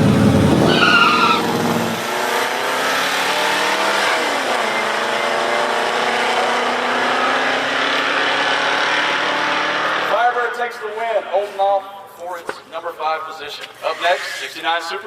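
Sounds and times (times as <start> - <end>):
car engines at full throttle: 0.0 - 10.3.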